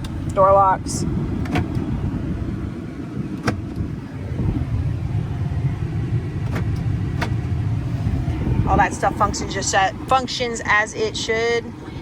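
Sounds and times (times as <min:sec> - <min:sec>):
low rumble in cab: 0:00.0 - 0:12.0
power door locks clicking: 0:01.4 - 0:01.9, 0:03.3 - 0:03.9, 0:06.4 - 0:07.6.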